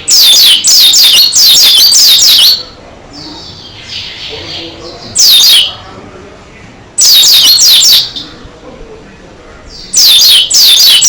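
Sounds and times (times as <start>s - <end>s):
soft high bird chatter: 0.0s - 11.0s
bird singing falling high notes: 9.8s - 11.0s.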